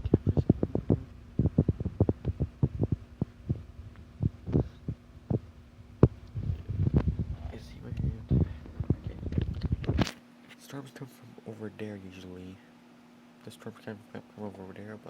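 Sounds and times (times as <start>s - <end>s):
thumps and taps on microphone: 0.0s - 5.4s, 6.0s - 10.1s
steady low hum: 0.0s - 15.0s.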